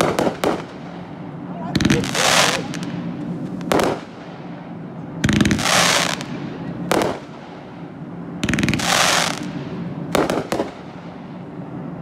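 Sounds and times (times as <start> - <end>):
crackling firework bursts: 0.0 - 11.5
firework bangs: 0.0 - 11.5.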